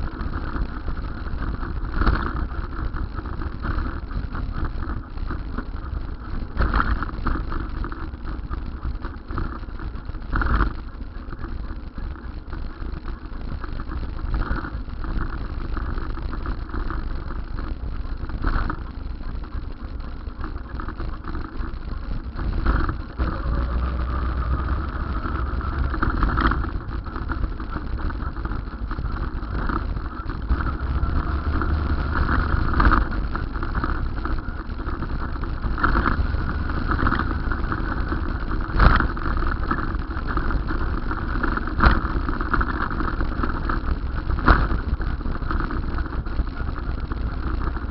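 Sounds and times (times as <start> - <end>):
vehicle road noise rumble: 0.0 - 47.9.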